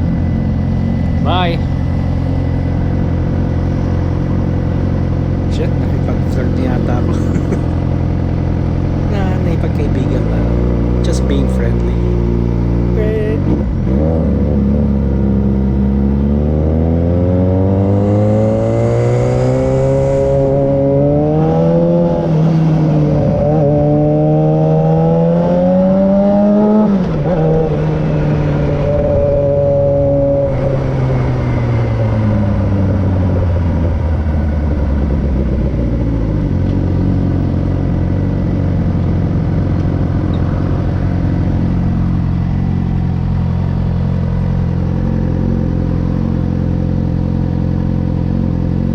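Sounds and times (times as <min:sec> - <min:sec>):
motorcycle accelerating through gears: 0:10.2 - 0:11.1, 0:12.0 - 0:48.9.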